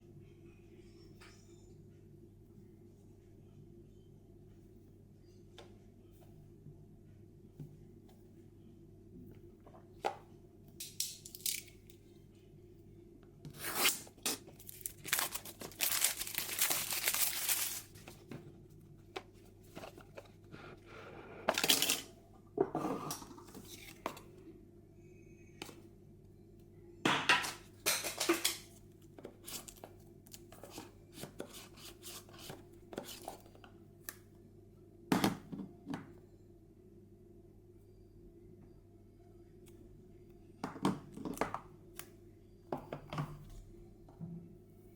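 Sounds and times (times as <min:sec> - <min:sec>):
packaging tearing: 0:13.6 - 0:17.9
packaging rustling: 0:13.6 - 0:18.2.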